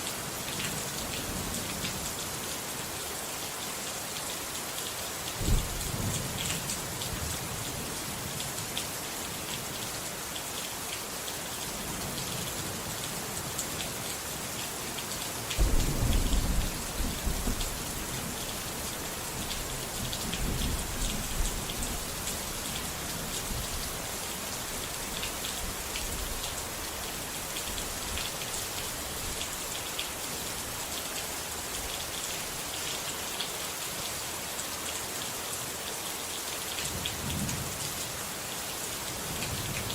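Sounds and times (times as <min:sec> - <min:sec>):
heavy rain on a surface: 0:00.0 - 0:39.9
thunder rumbling: 0:15.6 - 0:18.4.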